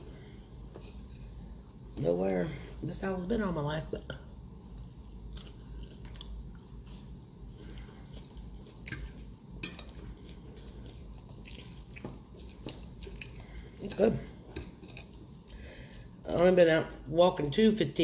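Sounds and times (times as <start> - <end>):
low steady hum: 0.0 - 18.0
chewing salad: 0.6 - 1.9, 4.7 - 16.4.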